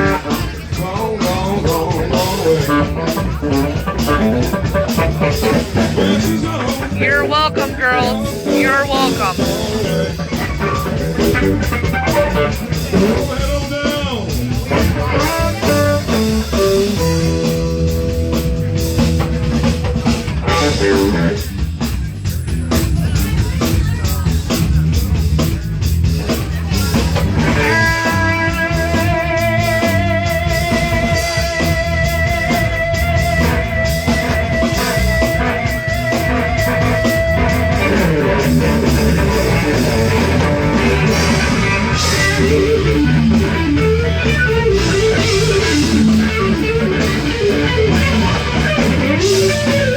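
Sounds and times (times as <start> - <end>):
bass and drums: 0.0 - 49.9
electric guitar lead: 29.3 - 49.9.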